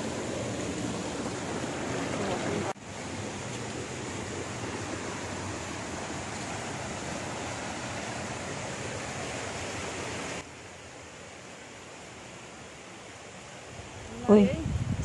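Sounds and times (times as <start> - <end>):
stream water flowing: 0.0 - 14.5.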